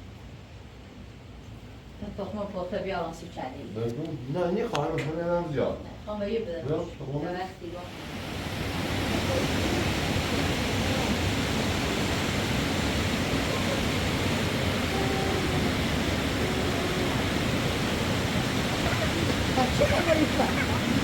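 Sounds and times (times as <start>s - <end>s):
faint voices: 7.8s - 21.0s
steady rushing noise: 7.8s - 21.0s.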